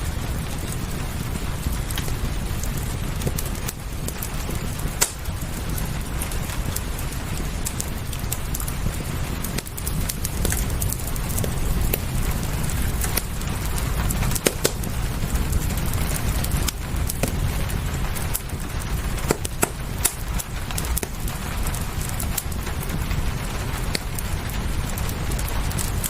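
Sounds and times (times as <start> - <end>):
fireplace crackling and popping: 0.0 - 26.0
rain hissing: 0.0 - 26.0.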